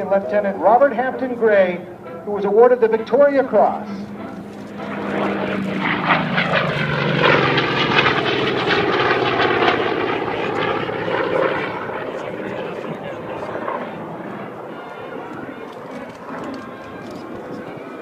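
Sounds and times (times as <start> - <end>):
propeller plane flying past: 0.0 - 18.0.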